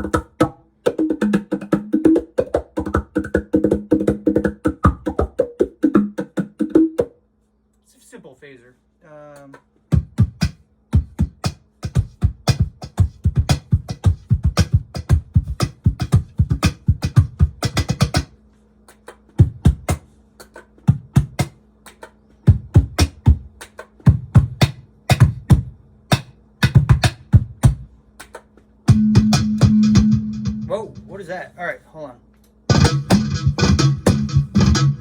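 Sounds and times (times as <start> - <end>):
cajon hand drumming: 0.0 - 7.2, 9.9 - 18.3, 19.4 - 20.1, 20.9 - 21.6, 22.5 - 23.5, 24.1 - 27.9, 28.9 - 31.1, 32.7 - 35.0
faint steady hum: 0.0 - 35.0.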